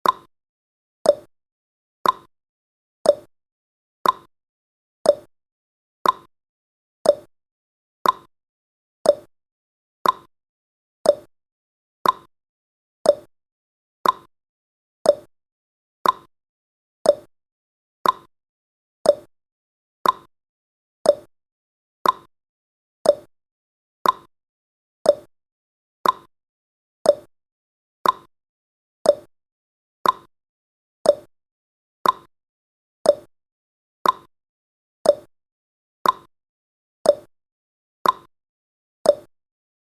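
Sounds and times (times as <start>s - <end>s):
clock ticking: 2.0s - 2.3s, 4.0s - 4.3s, 6.0s - 6.3s, 8.0s - 8.3s, 10.0s - 10.3s, 12.0s - 12.3s, 14.0s - 14.3s, 16.0s - 16.3s, 18.0s - 18.3s, 20.0s - 20.3s, 22.0s - 22.3s, 23.1s - 23.3s, 24.0s - 24.3s, 26.0s - 26.3s, 28.0s - 28.3s, 29.1s - 29.3s, 30.0s - 30.3s, 31.1s - 31.3s, 32.0s - 32.3s, 33.1s - 33.3s, 34.0s - 34.3s, 35.1s - 35.3s, 36.0s - 36.3s, 38.0s - 38.3s, 39.1s - 39.3s.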